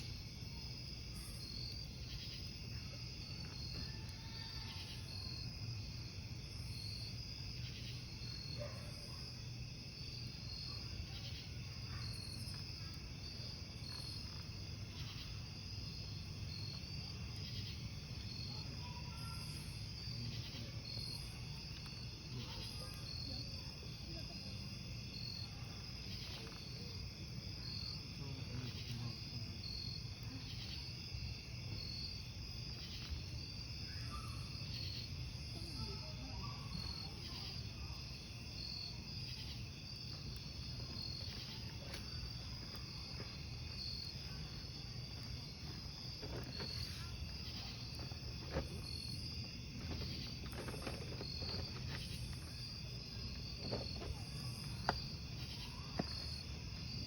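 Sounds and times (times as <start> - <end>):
crickets chirping: 0.0 - 57.0
campfire crackling and popping: 10.0 - 24.8, 37.2 - 52.8.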